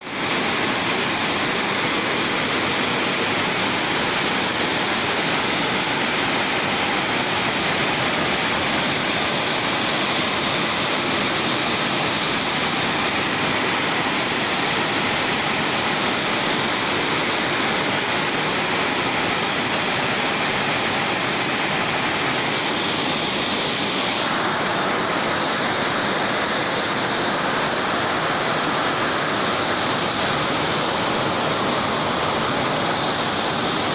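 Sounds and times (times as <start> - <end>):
torrential rain: 0.0 - 33.9.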